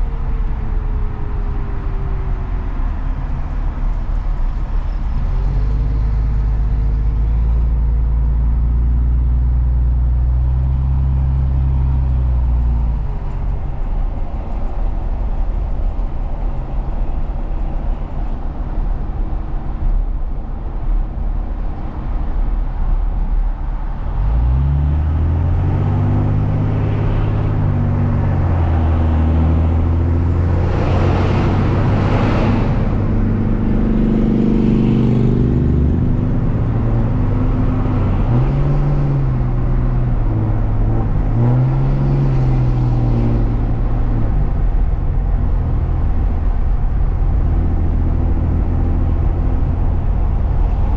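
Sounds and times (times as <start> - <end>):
road noise: 0.0 - 50.9
truck engine accelerating: 0.0 - 50.9
rushing noise: 11.8 - 50.9.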